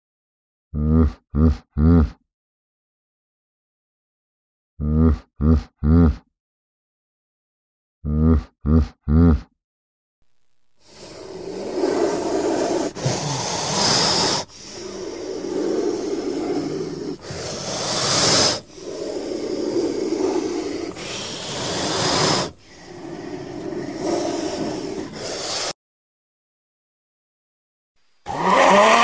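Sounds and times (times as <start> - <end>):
cobra hissing: 10.8 - 25.8.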